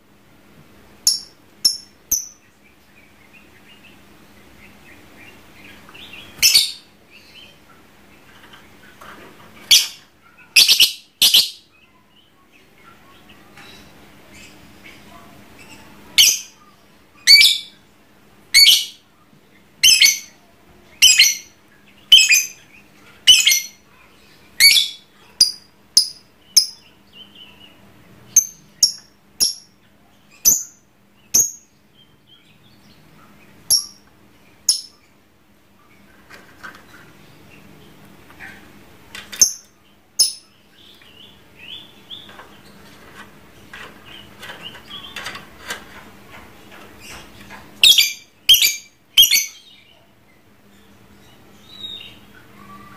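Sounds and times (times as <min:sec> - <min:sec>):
bird twittering chatter: 0:09.6 - 0:11.7, 0:47.0 - 0:49.9.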